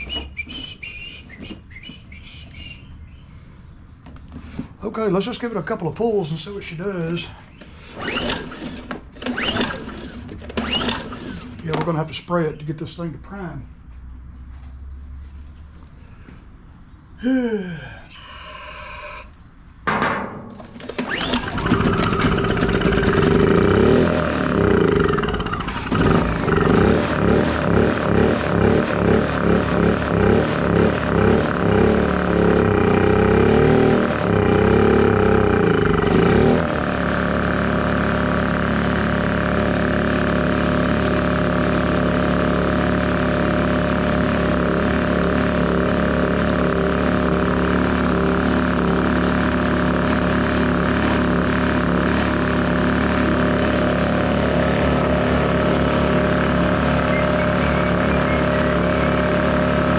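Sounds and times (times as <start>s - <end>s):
generator engine running: 4.2s - 12.4s, 20.5s - 59.9s.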